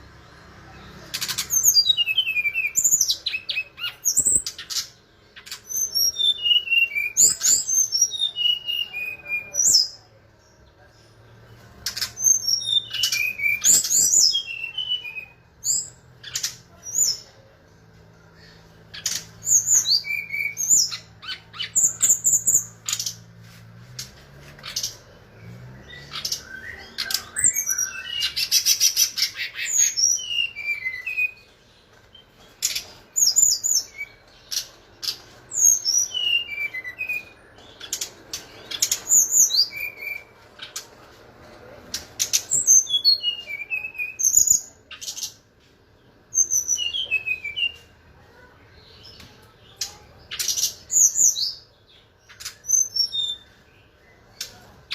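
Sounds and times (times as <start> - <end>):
bird singing: 0.0 - 17.5, 18.2 - 23.3, 24.0 - 40.9, 41.6 - 45.4, 46.0 - 54.9.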